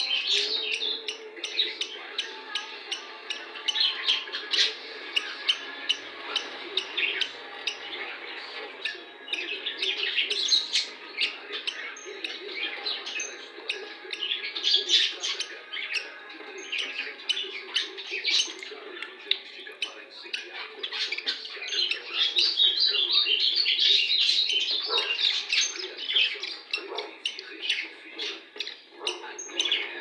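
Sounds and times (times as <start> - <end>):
young bird peeping: 0.0 - 30.0.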